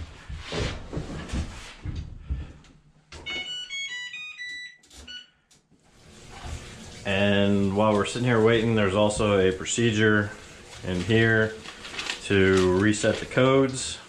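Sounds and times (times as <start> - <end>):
washing machine electronic beeps: 3.2 - 5.5.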